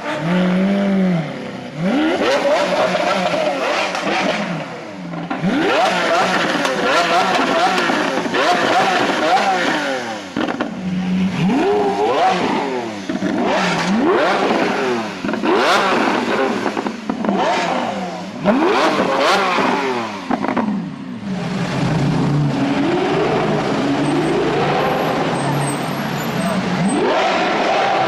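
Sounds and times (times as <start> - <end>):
car engine revving: 0.0 - 28.0
exhaust pops and crackles: 5.1 - 10.8, 13.0 - 17.6, 18.5 - 20.8.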